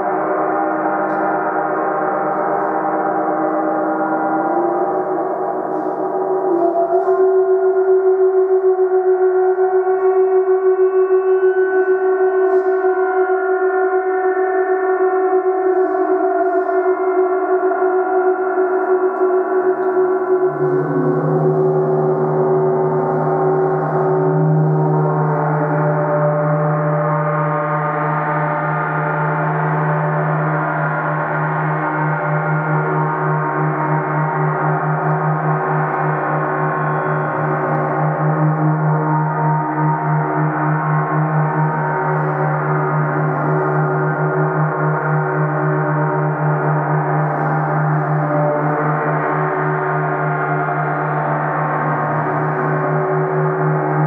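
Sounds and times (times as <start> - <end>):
deep low gong tone: 18.8 - 54.0
gong ringing: 20.2 - 26.7.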